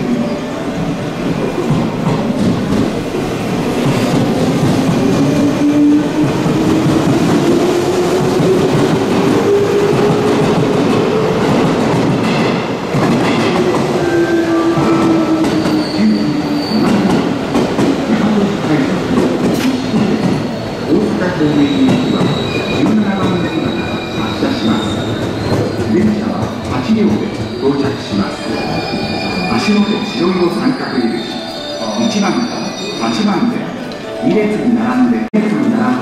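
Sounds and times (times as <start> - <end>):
high squeal: 21.4 - 33.8.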